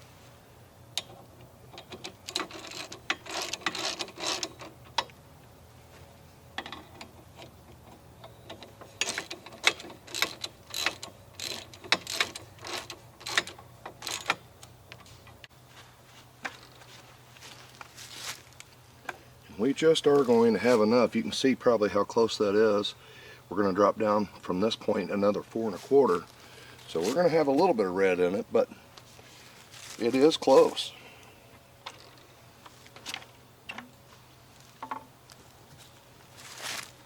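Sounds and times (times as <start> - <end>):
faint hum: 0.0 - 37.0
metallic ratcheting clicks: 6.6 - 14.4.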